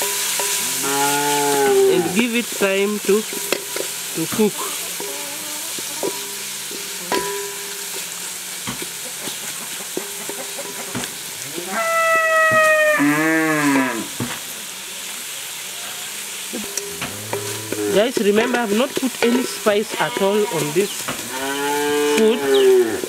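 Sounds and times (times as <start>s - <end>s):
vegetables sizzling in a pot: 0.0s - 23.0s
cow mooing: 0.6s - 2.3s, 11.4s - 14.1s, 16.8s - 18.1s, 20.0s - 23.0s.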